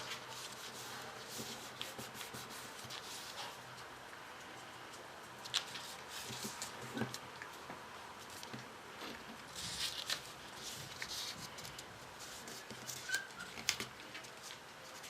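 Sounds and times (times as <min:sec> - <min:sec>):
paper rustling and crinkling: 0:05.4 - 0:07.2, 0:08.2 - 0:15.0
sharp paper ticks: 0:09.5 - 0:15.0.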